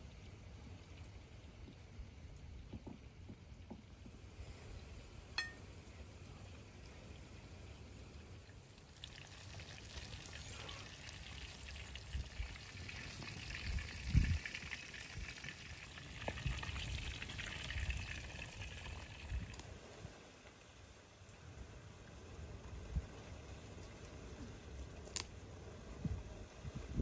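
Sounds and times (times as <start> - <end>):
eggplant sizzling in hot oil: 8.6 - 19.6.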